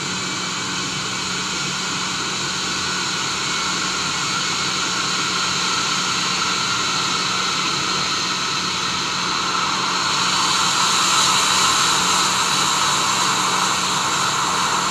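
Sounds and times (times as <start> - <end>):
jet engine hiss: 9.2 - 14.9.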